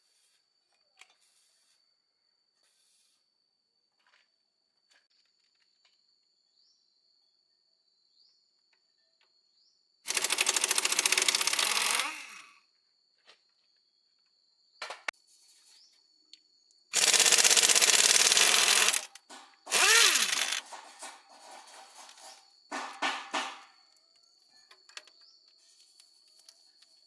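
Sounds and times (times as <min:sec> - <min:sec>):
tool rapid rattling bursts: 0:10.1 - 0:12.5, 0:16.9 - 0:23.7.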